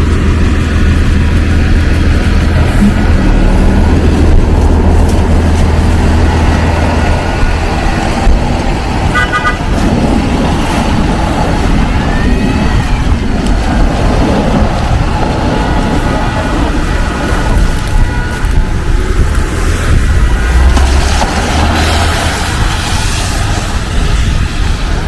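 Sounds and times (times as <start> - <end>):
vehicle engine running: 0.0 - 25.0
car horn toots: 9.0 - 10.0, 15.6 - 22.8.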